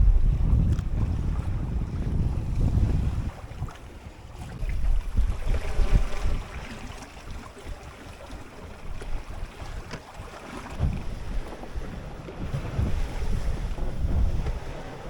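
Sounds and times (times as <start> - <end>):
waves washing against boat: 0.0 - 15.0
wind buffeting microphone: 0.0 - 15.0.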